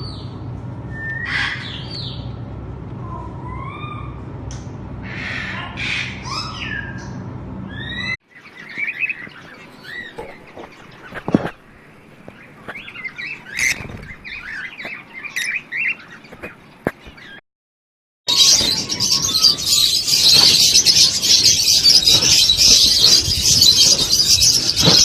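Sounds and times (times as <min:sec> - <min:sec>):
parrots chirping and squawking: 0:07.8 - 0:17.4, 0:18.3 - 0:25.0.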